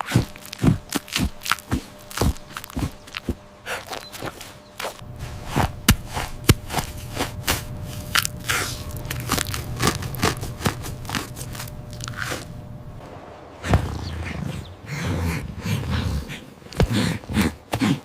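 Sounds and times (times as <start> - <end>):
low steady hum: 0.0 - 18.0
sharp irregular crunches: 0.0 - 18.0.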